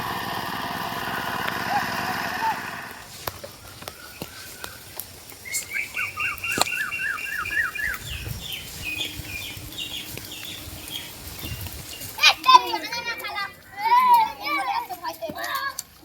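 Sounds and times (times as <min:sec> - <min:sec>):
rain hissing: 0:00.0 - 0:13.7
songbird calling: 0:02.4 - 0:12.4.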